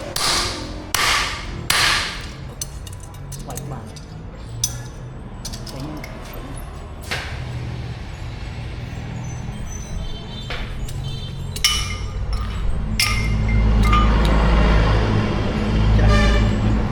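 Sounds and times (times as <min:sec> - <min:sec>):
hammer striking anvil: 0:00.0 - 0:03.1, 0:10.9 - 0:14.8.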